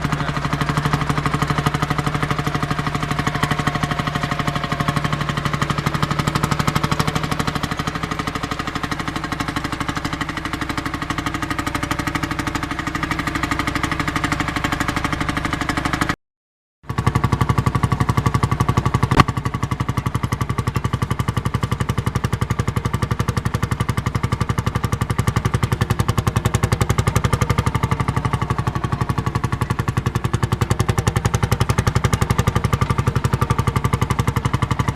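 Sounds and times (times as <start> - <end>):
diesel engine rapid beat: 0.0 - 16.2, 16.8 - 34.9
sharp crack: 19.1 - 19.5.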